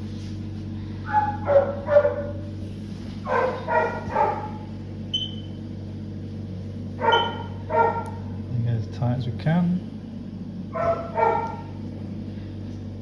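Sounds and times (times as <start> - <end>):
dog barking: 1.0 - 2.4, 3.2 - 4.7, 7.0 - 8.3, 10.7 - 11.8.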